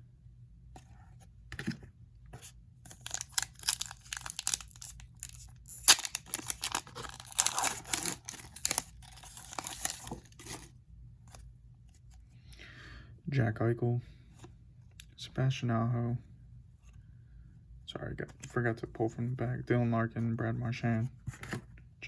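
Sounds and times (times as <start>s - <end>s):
plastic foil wrapper tearing: 2.9s - 10.7s.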